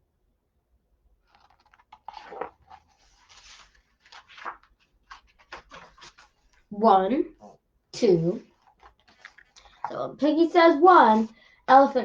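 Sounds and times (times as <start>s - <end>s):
rustling and crinkling handling noise: 1.2s - 6.7s, 8.3s - 12.0s.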